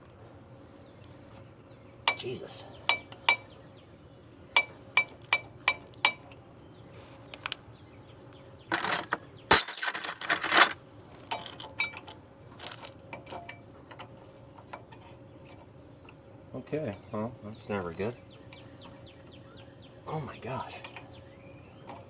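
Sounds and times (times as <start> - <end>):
metal tools scraping clatter: 8.7 - 13.5
metal tools tapping on metal: 8.7 - 14.1.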